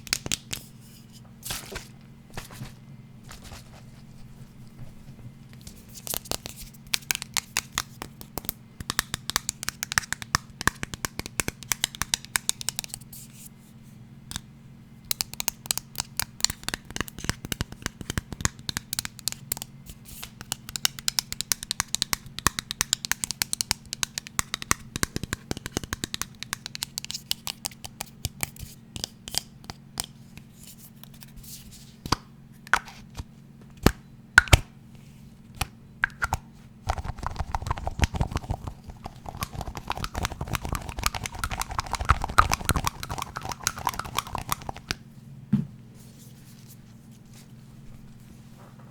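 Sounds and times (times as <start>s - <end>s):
fingertip tapping and scratching: 15.1s - 29.8s, 36.9s - 45.0s.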